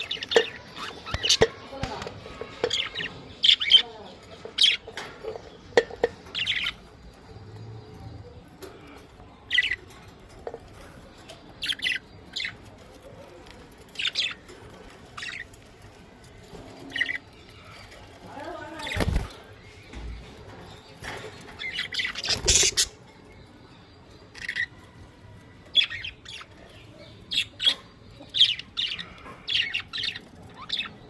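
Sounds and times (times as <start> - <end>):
budgerigars chirping: 21.6 - 23.1.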